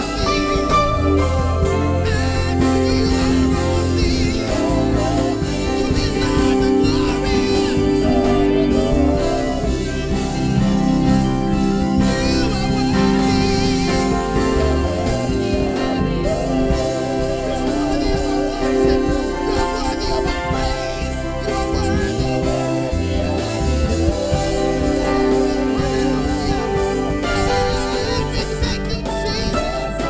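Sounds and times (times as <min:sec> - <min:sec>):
live band playing gospel music: 0:00.0 - 0:30.0
person singing: 0:00.0 - 0:30.0.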